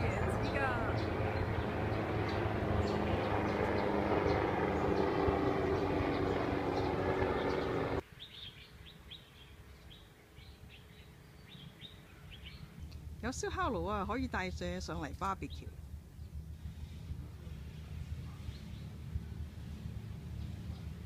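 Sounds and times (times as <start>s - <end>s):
loud steady drone with hum: 0.0s - 8.0s
small birds chirping: 0.0s - 21.0s.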